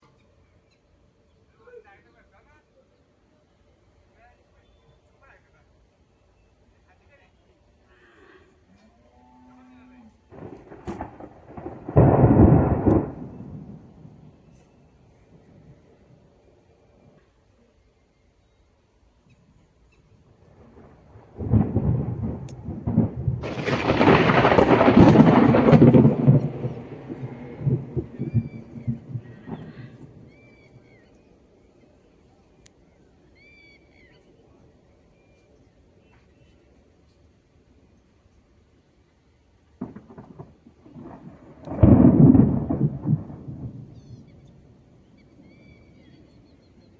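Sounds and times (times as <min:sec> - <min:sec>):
thunder rumbling: 0:10.2 - 0:17.1, 0:20.3 - 0:32.2, 0:39.8 - 0:46.9
thunder cracks: 0:10.3 - 0:16.2, 0:20.4 - 0:31.0, 0:39.8 - 0:46.5.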